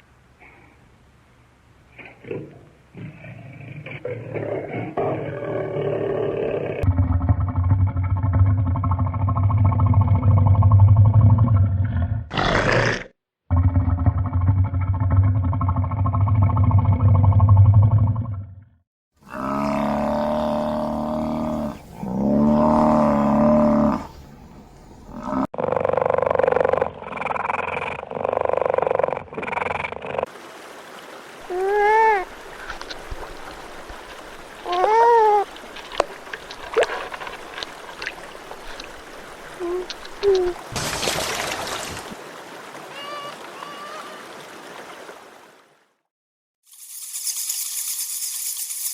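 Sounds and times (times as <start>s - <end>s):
low steady growl: 5.2s - 12.3s.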